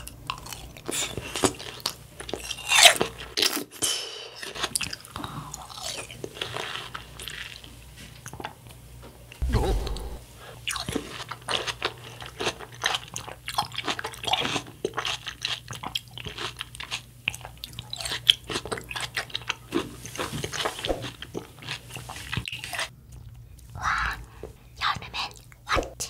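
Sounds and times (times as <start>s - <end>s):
person chewing with crunches: 4.5s - 7.7s, 11.0s - 24.5s.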